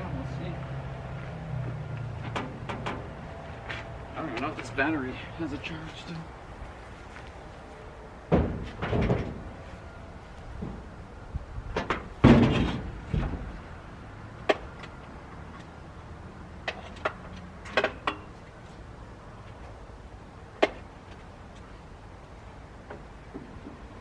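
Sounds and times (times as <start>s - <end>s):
heavy metal clunk: 8.3s - 9.5s, 11.7s - 13.5s.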